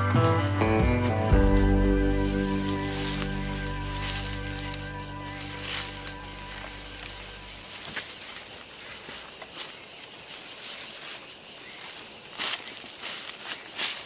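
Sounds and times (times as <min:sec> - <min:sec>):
low background music tones: 0:00.0 - 0:07.6
insects buzzing: 0:00.0 - 0:14.0.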